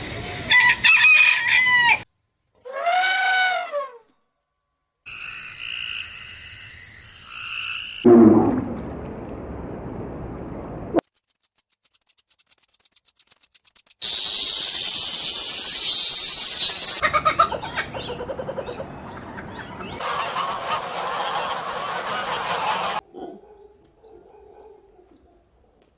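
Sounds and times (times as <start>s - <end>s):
loud high hiss: 14.0s - 17.0s
chorus of animal calls: 16.9s - 23.4s.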